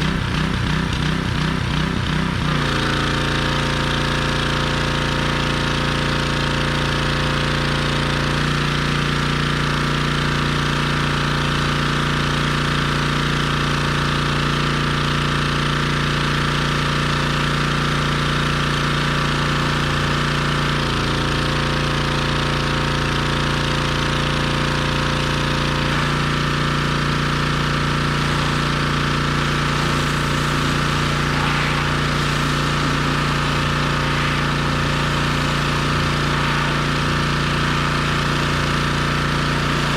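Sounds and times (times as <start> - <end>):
pressure washer engine running: 0.0 - 39.9
hiss of spray: 25.9 - 39.9.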